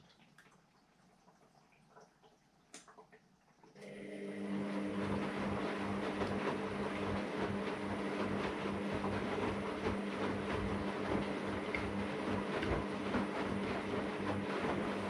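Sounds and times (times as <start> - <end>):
washer-dryer humming: 2.7 - 15.0
washer-dryer clatter: 5.0 - 15.0.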